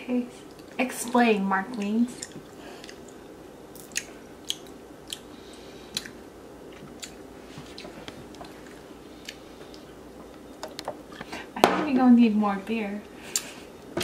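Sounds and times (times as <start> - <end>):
low room hum: 0.0 - 14.0
person chewing crunchy food: 1.7 - 10.0.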